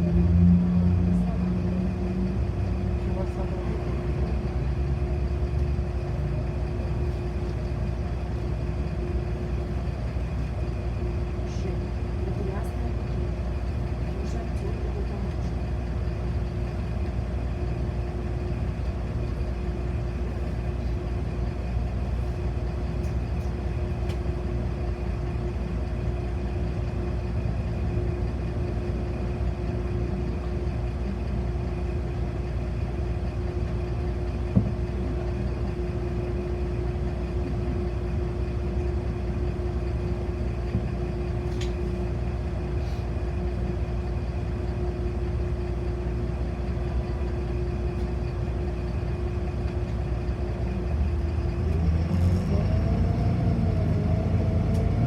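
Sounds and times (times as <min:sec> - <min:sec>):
bus engine rumble: 0:00.0 - 0:55.0
constant hum: 0:00.0 - 0:55.0.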